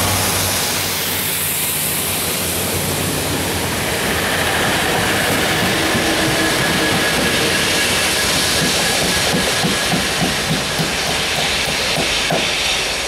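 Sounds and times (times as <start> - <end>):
diesel locomotives passing: 0.0 - 13.0
train wheels clicking over rail joints: 4.2 - 13.0.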